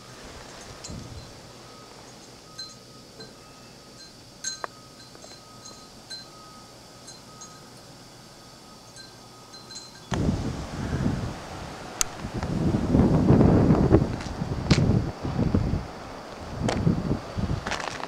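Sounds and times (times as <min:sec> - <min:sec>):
wind gust on microphone: 0:00.0 - 0:01.6, 0:10.1 - 0:17.8
wind chimes tinkling: 0:00.4 - 0:10.1.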